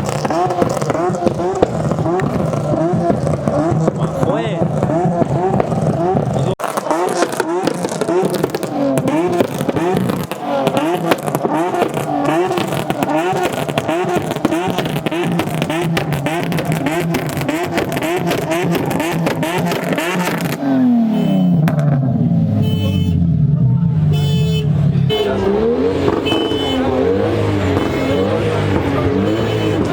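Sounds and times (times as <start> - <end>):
exhaust cracks and pops: 0.0 - 20.8, 21.6 - 22.1
car engine revving: 0.0 - 29.9.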